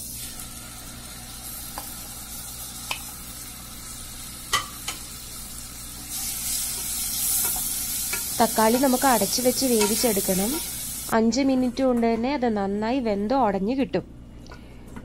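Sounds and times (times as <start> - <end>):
tomatoes sizzling in hot oil: 0.0 - 11.2.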